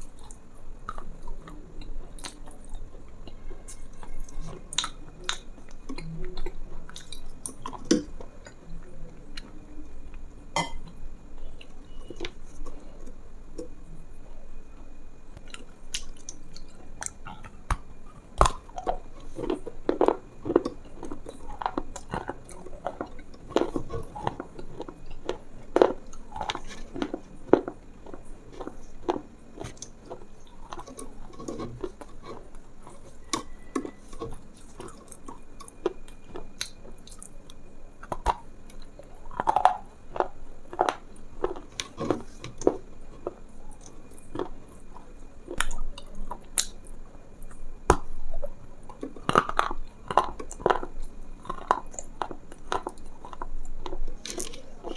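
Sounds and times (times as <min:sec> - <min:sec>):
crunchy chewing and biting: 0:15.4 - 0:54.9.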